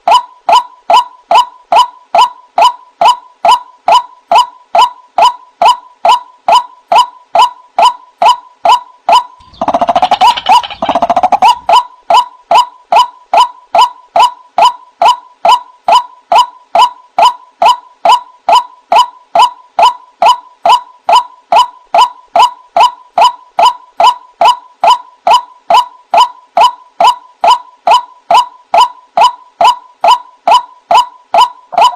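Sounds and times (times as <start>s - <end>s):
bird calling falling notes: 9.1s - 12.2s
harsh rasping bird calls: 9.4s - 11.8s.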